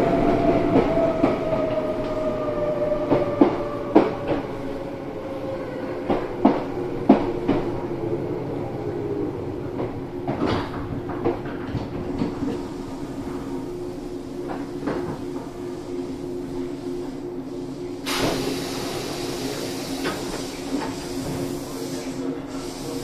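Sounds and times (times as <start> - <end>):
train running rumble: 5.6 - 23.0.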